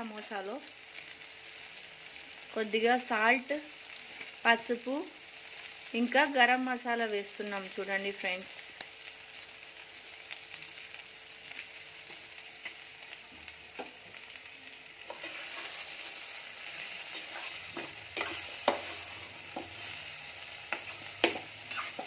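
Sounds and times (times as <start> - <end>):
filling sizzling in oil: 7.8 - 22.0
spoon scraping and knocking pan: 15.0 - 22.0.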